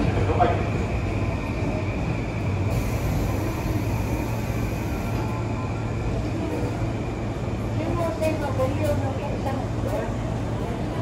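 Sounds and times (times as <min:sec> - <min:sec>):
station noise: 0:00.0 - 0:11.0
train equipment humming: 0:00.0 - 0:11.0.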